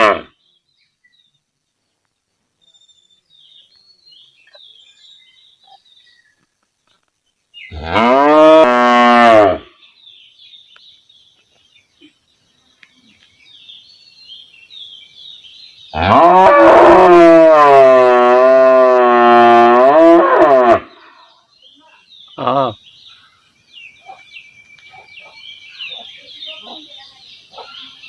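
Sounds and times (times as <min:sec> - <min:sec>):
faint bird chirps: 0:00.4 - 0:07.8, 0:20.9 - 0:28.0
cow mooing: 0:07.8 - 0:09.6.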